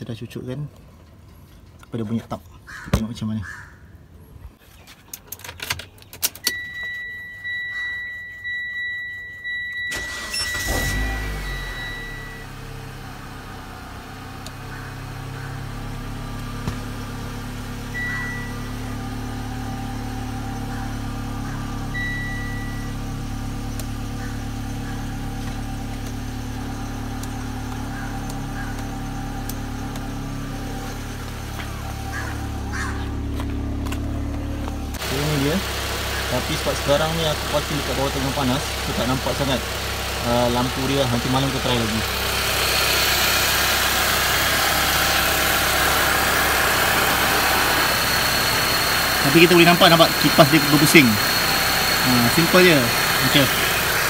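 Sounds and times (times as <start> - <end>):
car engine starting and idling: 5.4 - 54.0
electronic warning chime: 6.5 - 12.6, 17.9 - 18.8, 21.9 - 23.2, 47.4 - 53.6.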